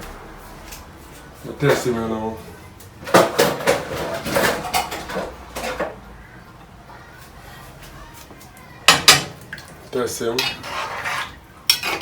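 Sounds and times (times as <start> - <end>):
utensil clinking and scraping pot: 10.0 - 12.0.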